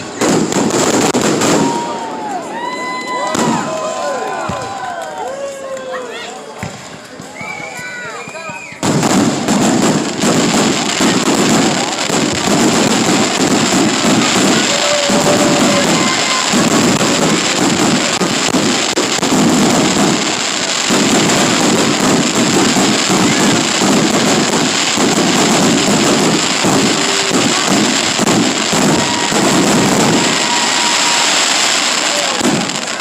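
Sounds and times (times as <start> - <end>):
fireworks crackling and popping: 0.0 - 33.0.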